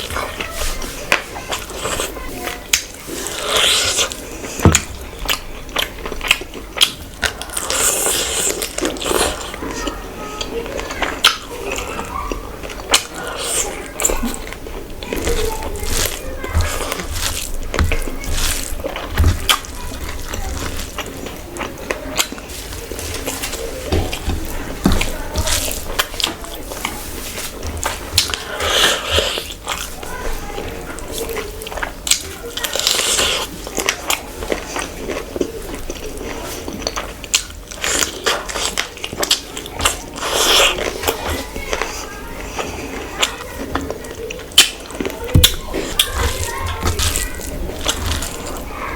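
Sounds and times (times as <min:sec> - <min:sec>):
wet chewing and squelching: 0:00.0 - 0:48.9
crunchy bites: 0:44.5 - 0:48.9.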